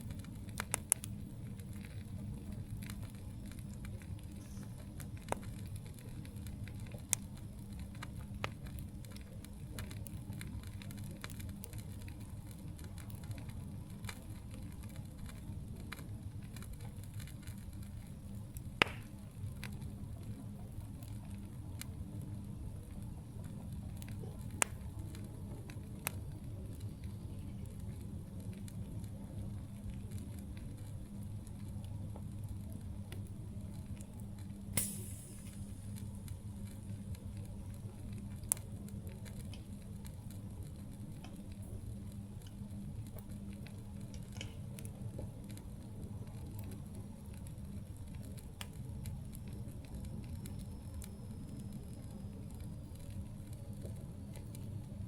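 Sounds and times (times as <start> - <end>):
campfire rumble: 0.0 - 55.0
fire crackles and pops: 0.0 - 55.0.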